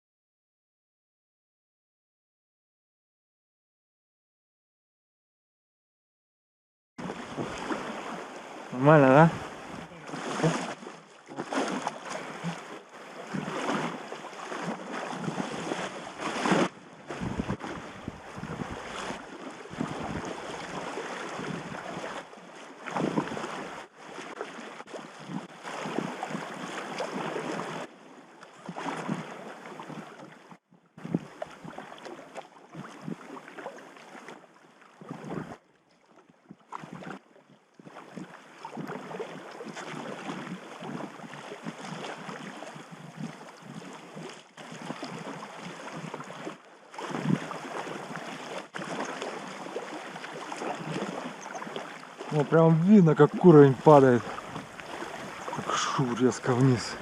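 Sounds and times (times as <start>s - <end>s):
river water rushing and splashing: 7.0s - 35.6s, 37.9s - 57.0s
wind buffeting microphone: 9.2s - 9.9s, 17.1s - 20.6s.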